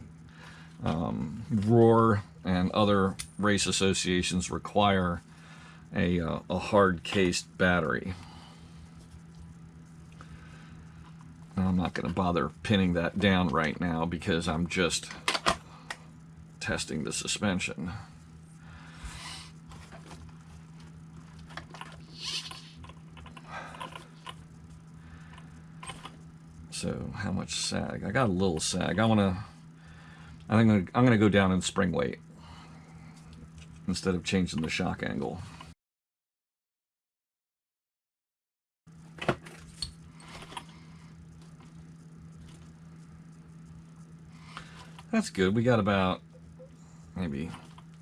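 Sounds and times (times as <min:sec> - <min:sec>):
steady low hum: 0:00.0 - 0:35.8, 0:38.9 - 0:48.0
rustling and scraping handling: 0:19.0 - 0:26.3.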